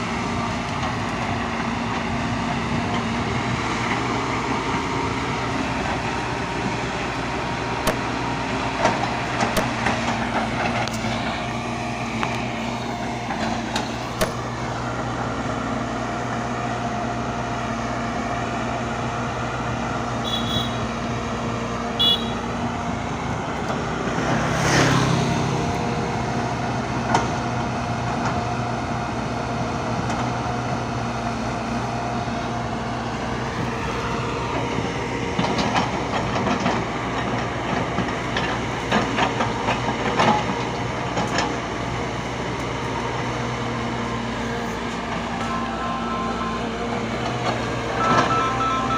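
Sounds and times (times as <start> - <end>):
heavy machinery engine running: 0.0 - 48.9.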